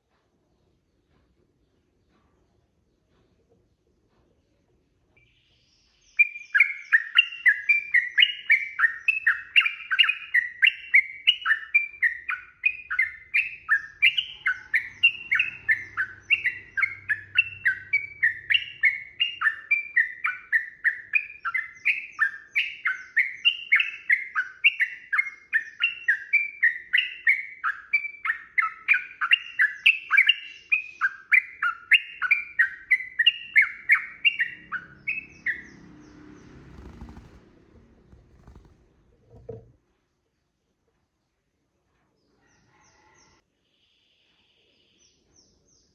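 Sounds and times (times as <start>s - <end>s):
bird chirping rapidly: 5.2s - 39.5s.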